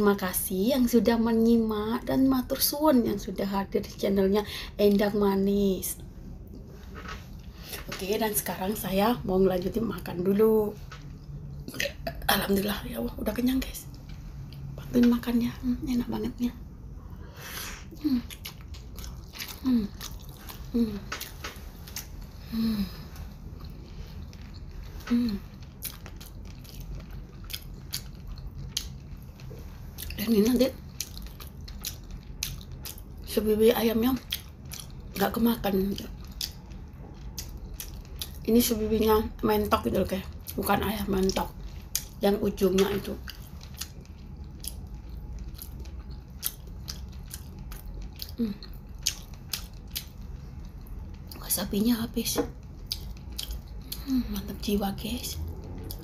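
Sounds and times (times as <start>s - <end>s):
person chewing food: 17.0s - 33.3s, 34.2s - 35.2s, 36.0s - 38.5s, 40.3s - 42.2s, 42.8s - 51.4s, 52.4s - 54.4s, 55.4s - 56.0s.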